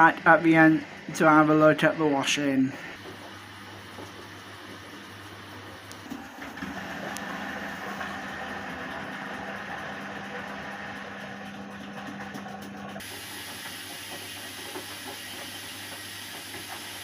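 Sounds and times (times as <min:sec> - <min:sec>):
washing machine motor hum: 0:00.0 - 0:17.0.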